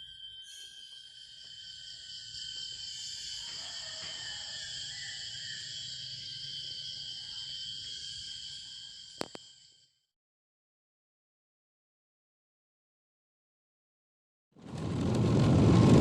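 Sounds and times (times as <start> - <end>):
crickets and insects trilling: 0.0 - 9.9.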